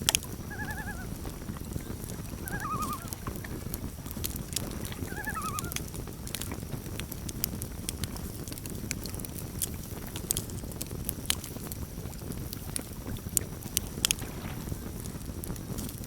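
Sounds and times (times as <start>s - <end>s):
campfire crackling and popping: 0.0s - 16.0s
steady low rumble: 0.0s - 16.0s.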